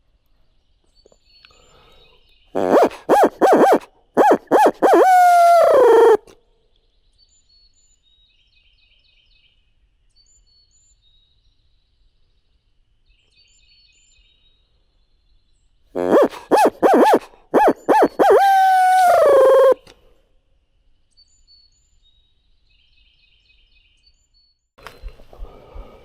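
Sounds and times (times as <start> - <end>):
distant birds chirping: 2.6 - 6.3, 16.0 - 19.9
owl hooting: 2.6 - 6.3, 16.0 - 19.9.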